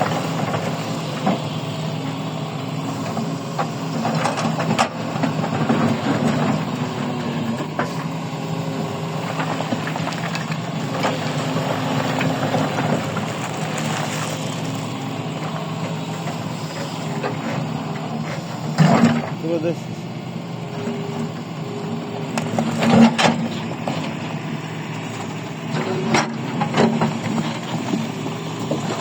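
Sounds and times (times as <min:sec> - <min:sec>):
heavy machine engine running: 0:00.0 - 0:29.0.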